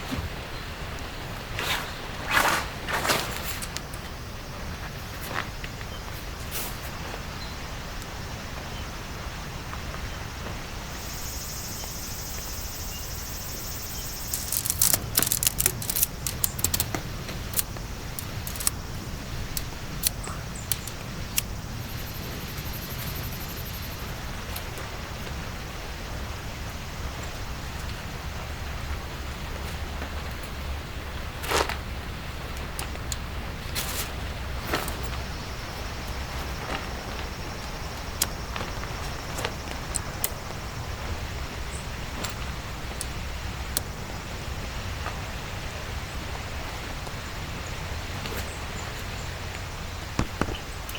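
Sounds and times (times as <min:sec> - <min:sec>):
sharp clicks and taps: 0:14.3 - 0:18.8.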